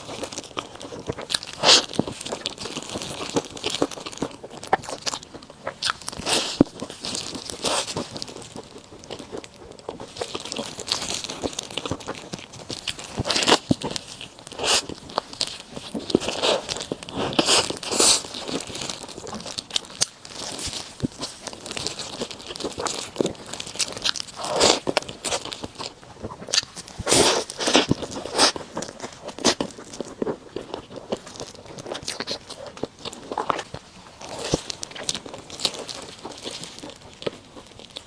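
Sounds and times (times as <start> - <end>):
person chewing crunchy food: 0.0 - 38.0.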